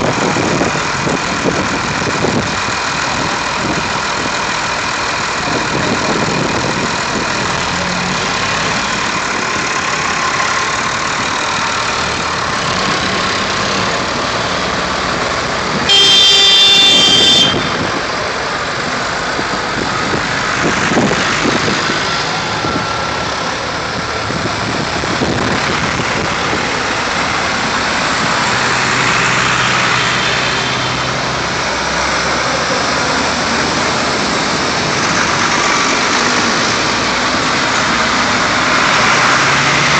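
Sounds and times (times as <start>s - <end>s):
tractor engines running: 0.0s - 39.9s
vehicle horn blast: 15.8s - 17.9s.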